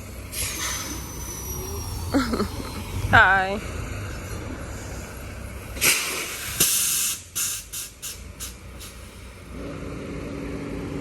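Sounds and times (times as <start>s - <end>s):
compressed air hissing: 0.3s - 1.8s, 5.8s - 9.4s.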